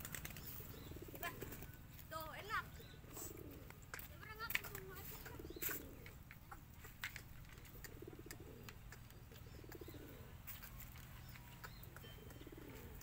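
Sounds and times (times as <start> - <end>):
pigeons cooing: 0.0 - 13.0
faint clicks and taps: 3.6 - 5.4.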